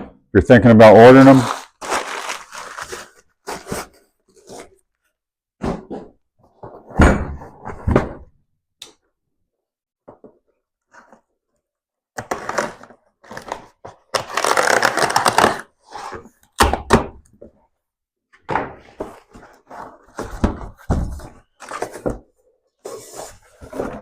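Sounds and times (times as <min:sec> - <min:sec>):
packaging rustling and scraping: 0:01.2 - 0:04.9, 0:19.0 - 0:24.0.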